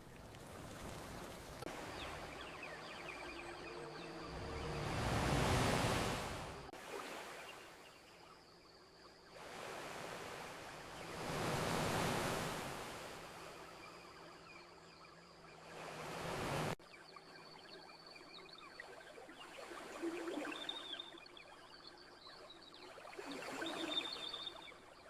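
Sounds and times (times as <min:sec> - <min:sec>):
ocean surf washing onto shore: 0:00.0 - 0:06.7, 0:09.4 - 0:13.7, 0:15.7 - 0:16.8.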